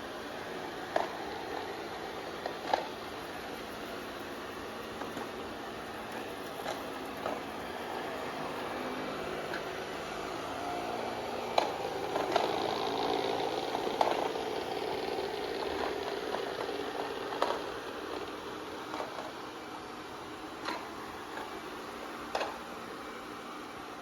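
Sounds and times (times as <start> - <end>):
robot vacuum whirring: 0.0 - 24.0.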